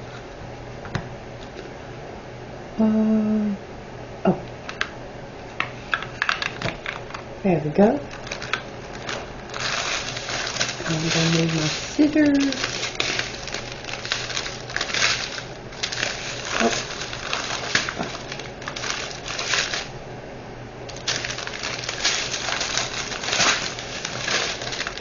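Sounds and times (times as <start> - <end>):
plastic bags crinkling: 5.9 - 7.2, 8.1 - 20.0, 20.9 - 25.0.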